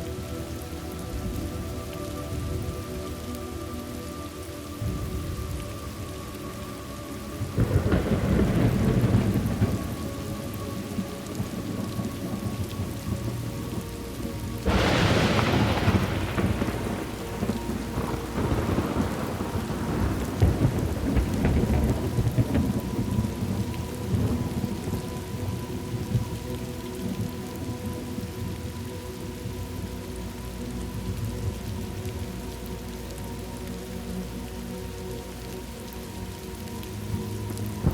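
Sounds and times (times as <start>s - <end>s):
steady rain: 0.0s - 37.9s
thunder rumbling: 7.2s - 33.4s, 35.8s - 37.9s
thunder crack: 14.6s - 25.0s.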